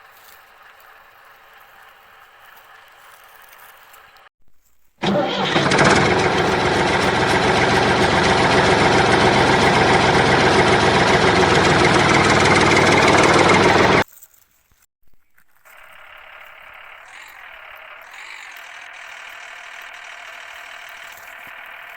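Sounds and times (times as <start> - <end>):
vehicle engine running: 5.0 - 14.0, 15.8 - 21.9.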